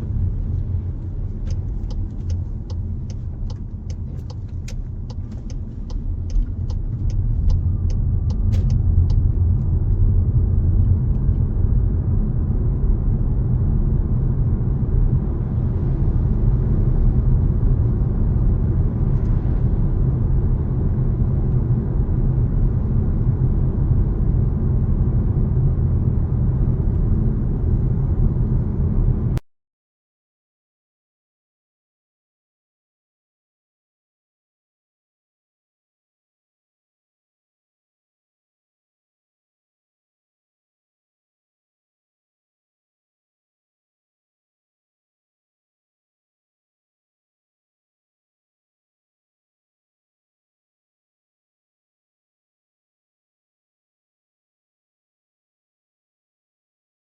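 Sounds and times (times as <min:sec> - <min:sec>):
car interior rumble: 0:00.0 - 0:29.4
road and wind noise: 0:00.0 - 0:29.4
regular ticking: 0:01.0 - 0:09.2.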